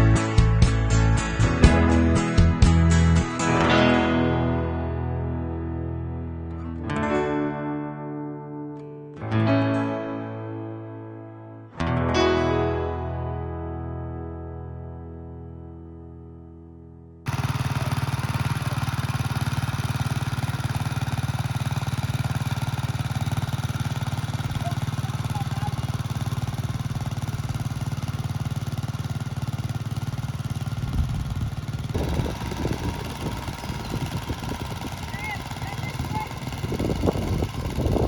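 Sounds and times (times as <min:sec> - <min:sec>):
tractor engine running: 0:17.3 - 0:38.0.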